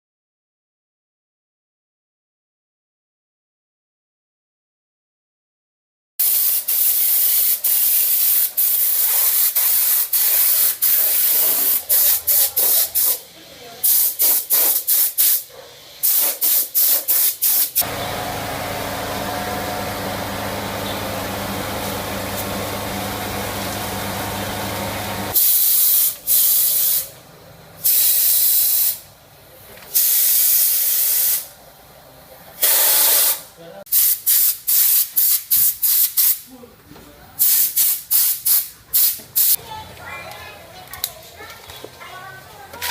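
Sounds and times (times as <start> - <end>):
spray gun hissing: 6.2 - 13.2, 13.8 - 18.0, 21.0 - 27.1, 30.0 - 31.5, 32.6 - 36.4
steady mechanical hum: 17.8 - 25.4.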